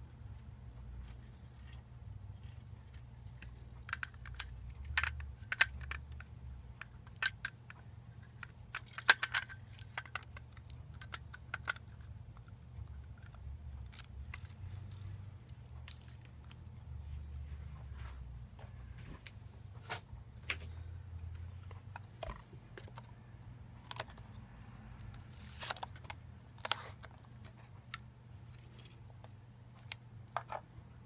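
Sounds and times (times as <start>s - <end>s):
low steady hum: 0.0s - 31.0s
hard parts clicking: 1.0s - 16.8s.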